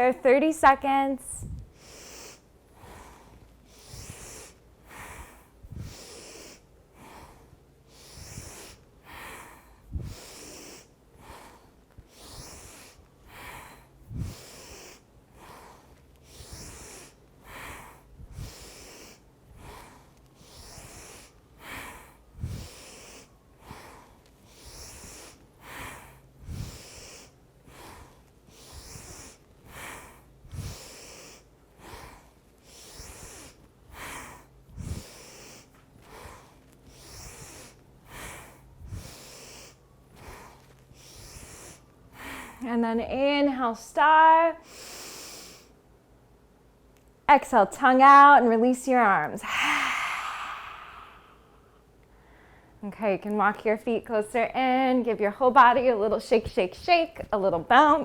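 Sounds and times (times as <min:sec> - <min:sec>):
woman breathing hard: 0:01.3 - 0:42.7, 0:49.4 - 0:52.8.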